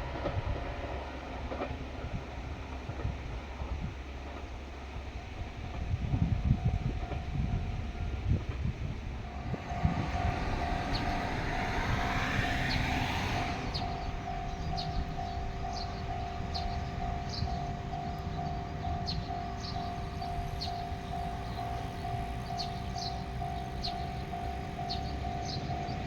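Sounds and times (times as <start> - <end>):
diesel railcar rumbling: 0.0 - 26.0
level crossing alarm ringing: 9.2 - 26.0.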